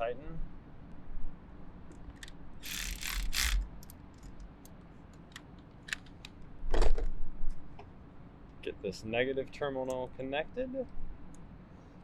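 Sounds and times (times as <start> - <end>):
metallic clicks and rattles: 1.9 - 6.3.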